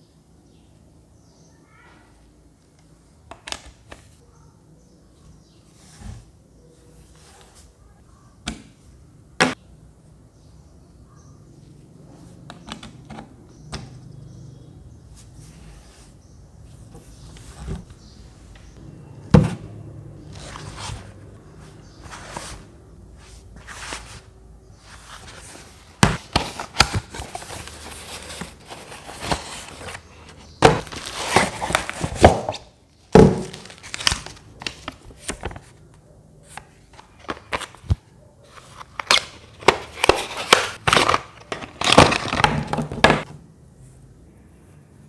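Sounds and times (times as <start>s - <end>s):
packaging crinkling: 30.7s - 32.5s, 33.2s - 35.6s.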